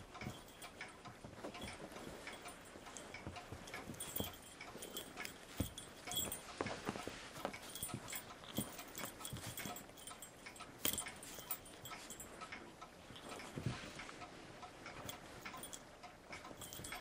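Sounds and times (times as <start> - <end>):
animals scuffling and knocking: 0.2 - 12.3.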